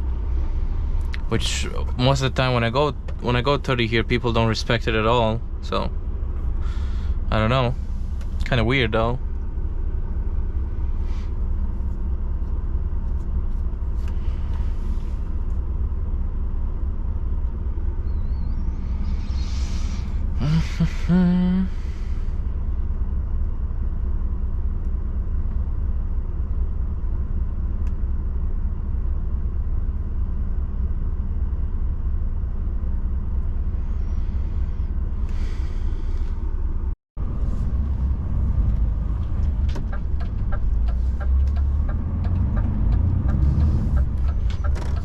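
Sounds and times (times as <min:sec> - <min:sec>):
truck engine and road rumble: 0:00.0 - 0:45.0
short rising whine: 0:16.9 - 0:25.2.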